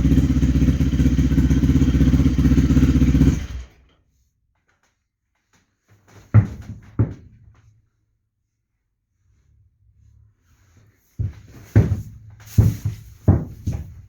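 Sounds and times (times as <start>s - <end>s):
motorcycle engine idling: 0.0s - 3.9s
knocks: 6.2s - 7.4s, 11.2s - 14.0s.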